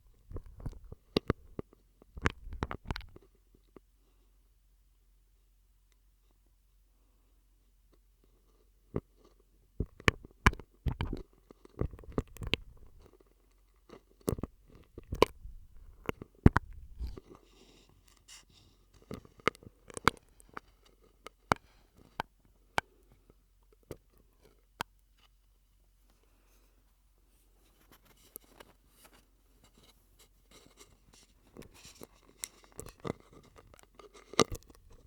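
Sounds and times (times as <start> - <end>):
wet mouth clicks and pops: 2.2 - 3.2, 9.8 - 11.2, 11.8 - 13.1, 14.3 - 17.2.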